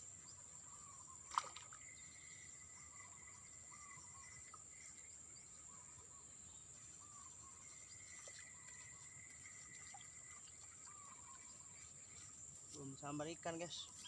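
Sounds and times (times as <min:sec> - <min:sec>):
bird chirping: 0:00.0 - 0:14.0
insects droning: 0:00.0 - 0:14.0.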